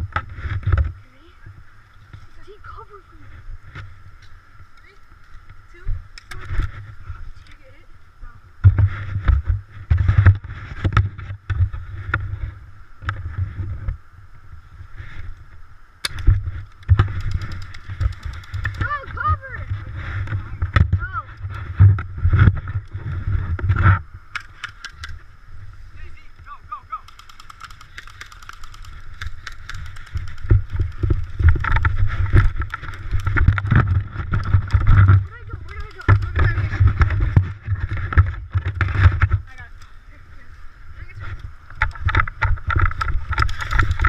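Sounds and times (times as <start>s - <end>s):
wind rumble on microphone: 0.0s - 26.7s, 27.8s - 44.0s
sharp clicks: 16.0s - 19.0s, 24.3s - 25.2s, 26.9s - 36.6s.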